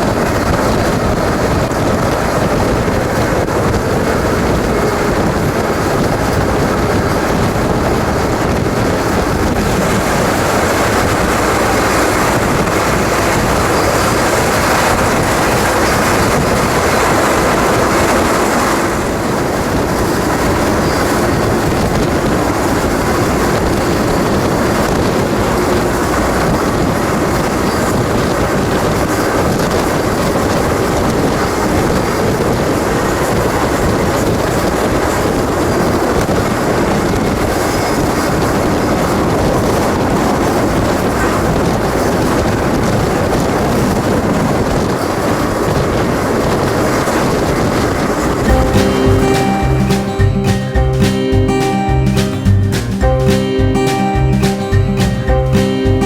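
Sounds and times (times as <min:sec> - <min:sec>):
freight train wheels rumbling on rails: 0:00.0 - 0:56.0.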